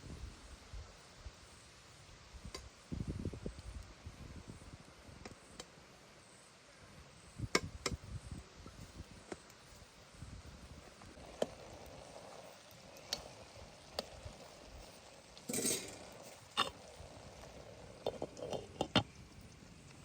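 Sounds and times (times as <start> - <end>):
utensils clinking against pot: 15.5 - 16.8.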